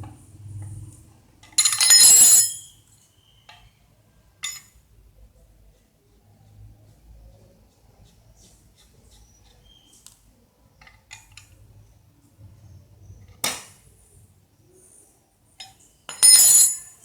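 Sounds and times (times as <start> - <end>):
metal parts clinking: 1.5 - 2.7, 4.4 - 4.7, 15.6 - 17.0.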